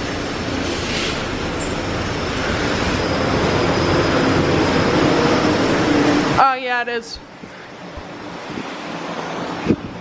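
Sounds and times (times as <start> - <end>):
low machinery hum: 0.0 - 8.5.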